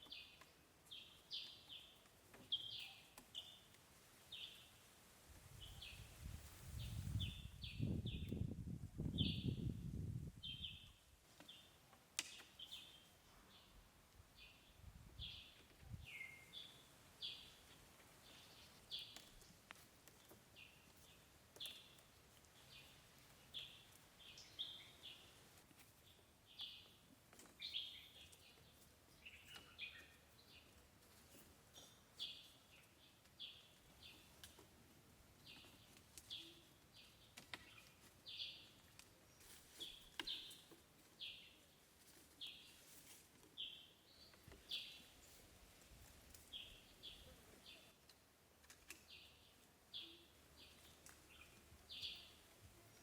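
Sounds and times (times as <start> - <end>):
bird chirping: 0.0 - 3.7, 14.4 - 19.6, 20.6 - 25.4, 27.6 - 30.7, 49.0 - 53.0.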